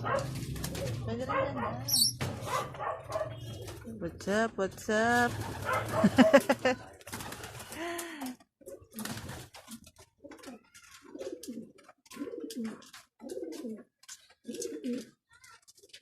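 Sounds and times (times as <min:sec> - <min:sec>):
pigeons cooing: 0:00.0 - 0:04.2, 0:05.3 - 0:07.8, 0:08.6 - 0:09.3, 0:10.2 - 0:15.1.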